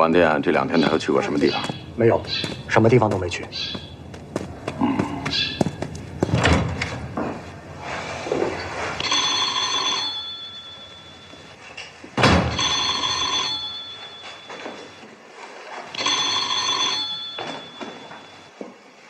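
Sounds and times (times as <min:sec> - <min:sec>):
telephone bell ringing: 0:09.0 - 0:11.6, 0:12.5 - 0:15.1, 0:15.9 - 0:18.6
loud thump: 0:12.2 - 0:12.6.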